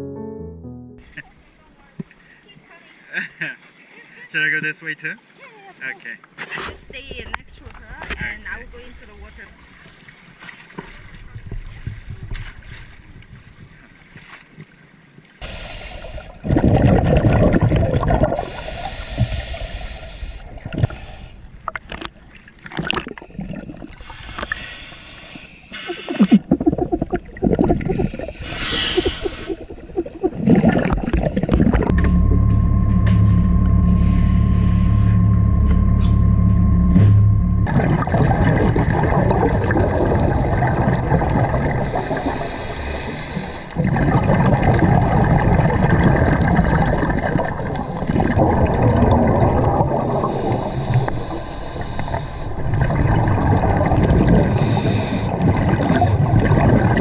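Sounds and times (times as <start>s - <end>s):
water sloshing and rushing: 3.0s - 57.0s
low hum with thin tone: 29.8s - 57.0s.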